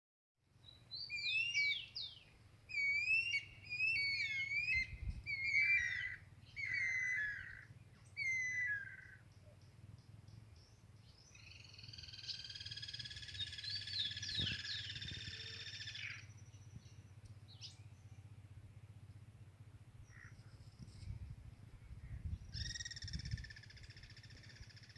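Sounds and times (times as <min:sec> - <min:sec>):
bird whistling phrases: 0:01.0 - 0:07.6, 0:08.2 - 0:09.1, 0:22.6 - 0:23.5
buzzy bird trill: 0:22.5 - 0:24.9.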